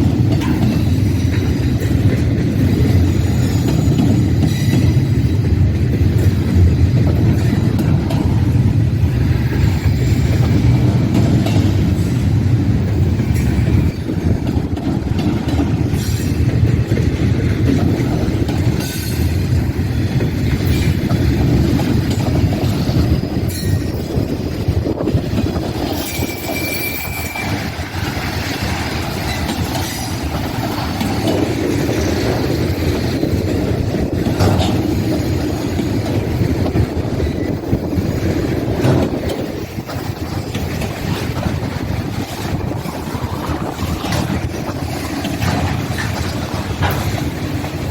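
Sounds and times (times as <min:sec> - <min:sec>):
freight train rumbling on rails: 0:00.0 - 0:47.9
train cars clanking: 0:00.0 - 0:47.9
high wheel squeal: 0:02.9 - 0:05.4, 0:25.9 - 0:31.2.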